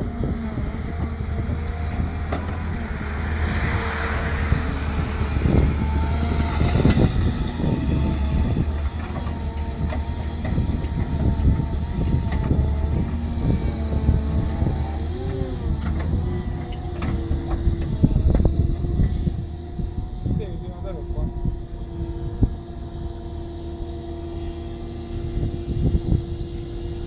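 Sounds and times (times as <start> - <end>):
whine shifting in pitch: 0.0 - 9.7, 16.2 - 27.0
excavator diesel engine humming: 0.0 - 27.0.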